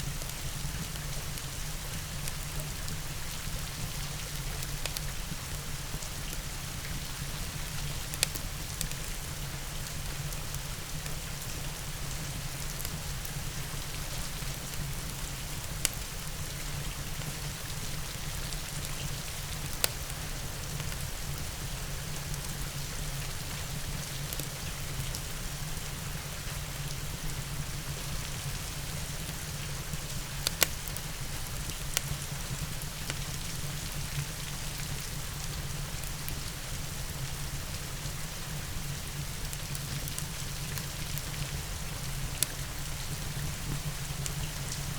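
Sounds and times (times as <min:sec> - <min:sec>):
steady rain hiss: 0:00.0 - 0:44.9
wood fire: 0:00.0 - 0:44.9.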